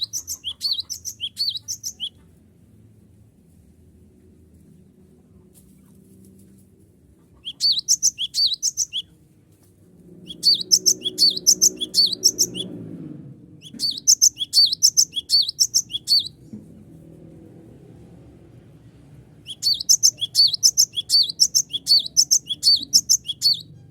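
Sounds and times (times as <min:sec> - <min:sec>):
bird singing sharp high notes: 0:00.0 - 0:02.1, 0:07.5 - 0:09.0, 0:10.3 - 0:12.7, 0:13.6 - 0:16.4, 0:19.5 - 0:23.7.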